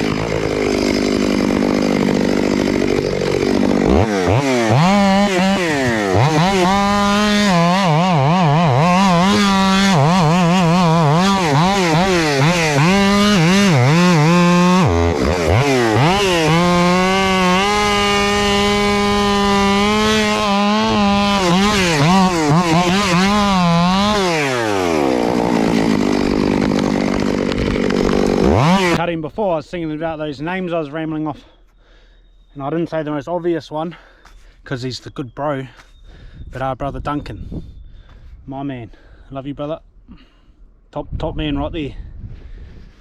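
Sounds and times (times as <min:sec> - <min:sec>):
chainsaw revving: 0:00.0 - 0:29.0.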